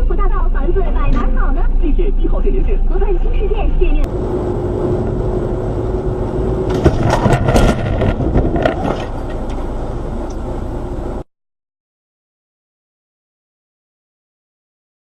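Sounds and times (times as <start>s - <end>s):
vehicle road and engine noise: 0.0s - 11.3s
sharp knocks and bangs: 6.6s - 9.4s.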